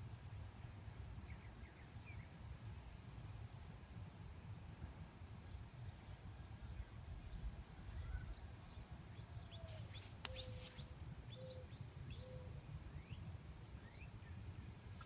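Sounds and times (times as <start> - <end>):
faint bird chirps: 5.4 - 15.0.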